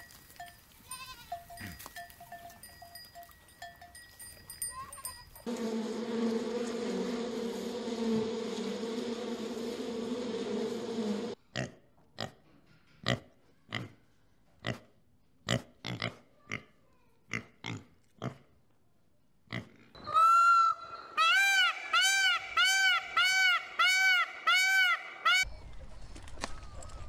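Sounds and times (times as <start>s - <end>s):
peacock calling: 20.0s - 25.5s.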